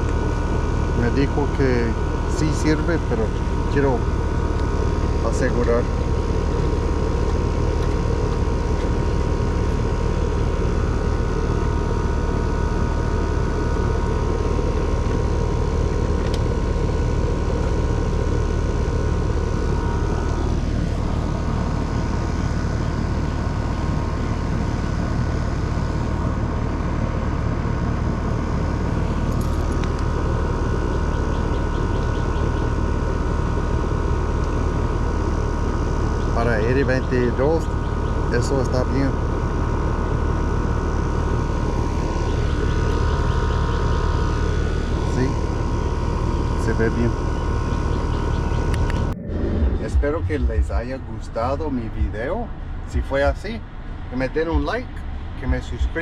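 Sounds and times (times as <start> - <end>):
air conditioner unit humming: 0.0 - 56.0
steady high tones: 49.0 - 54.8.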